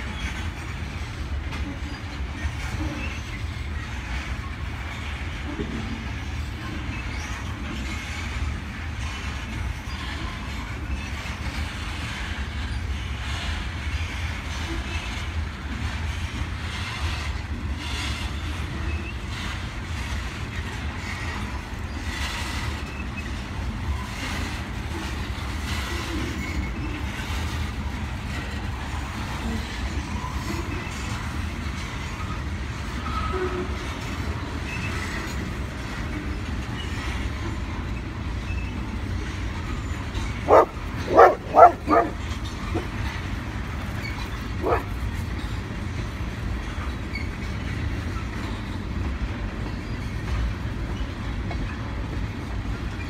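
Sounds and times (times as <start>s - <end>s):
freight train rumbling: 0.0s - 53.0s
faint wheel squeals: 33.0s - 43.2s, 46.6s - 48.9s.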